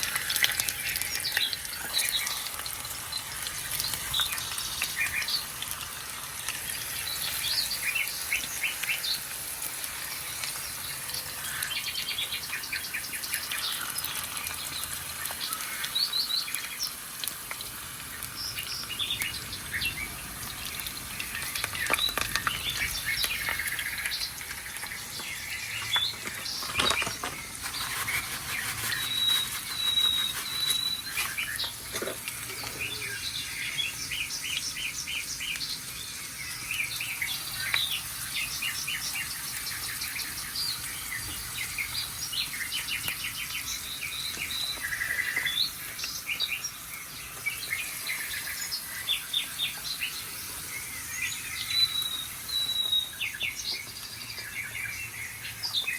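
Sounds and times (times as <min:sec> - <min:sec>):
songbirds chirping and trilling: 0:00.0 - 0:55.9
thin bird whistles: 0:27.6 - 0:31.8, 0:50.0 - 0:53.6.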